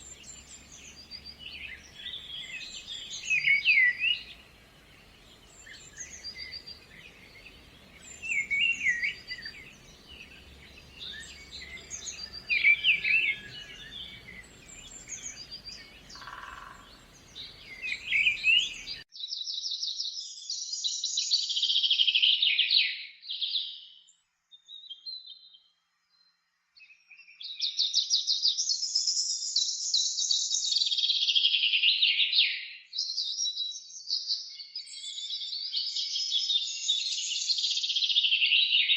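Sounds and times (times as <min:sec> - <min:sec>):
bird chirps and calls: 0:00.0 - 0:19.0
bird trilling songs: 0:00.0 - 0:19.0.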